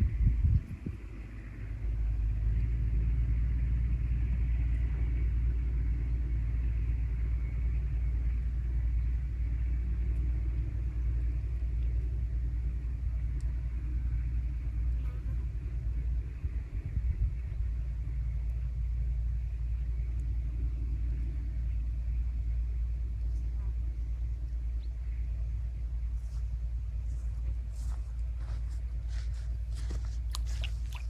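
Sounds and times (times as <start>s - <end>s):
wind buffeting microphone: 0.0s - 1.4s, 15.5s - 18.3s.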